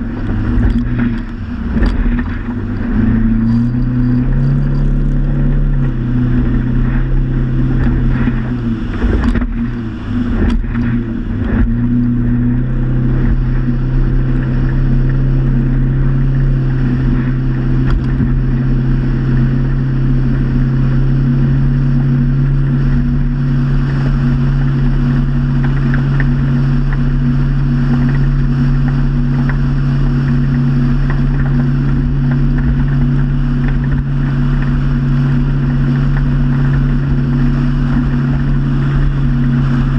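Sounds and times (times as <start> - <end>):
motorboat engine droning: 0.0 - 39.9
sharp engine knocks: 0.1 - 3.9, 7.7 - 11.9.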